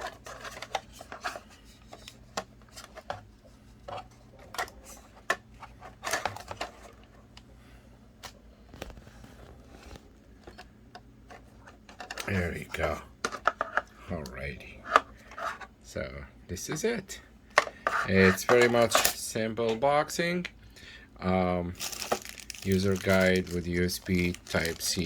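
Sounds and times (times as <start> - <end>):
packaging clicks and rustling: 8.2 - 10.7, 17.6 - 19.2, 21.8 - 25.0.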